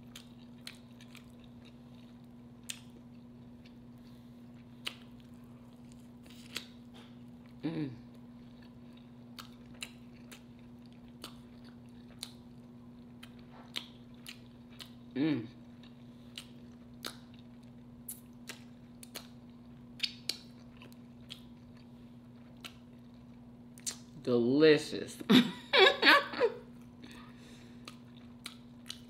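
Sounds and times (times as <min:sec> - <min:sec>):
chewing and lip-smacking: 0:00.0 - 0:24.2, 0:26.8 - 0:29.0
person humming: 0:07.6 - 0:08.1, 0:15.2 - 0:15.6.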